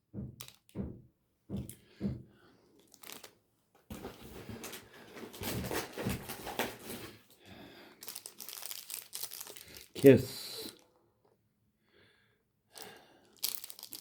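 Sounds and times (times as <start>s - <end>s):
plastic wrappers crinkling: 2.8s - 11.0s, 12.8s - 14.0s.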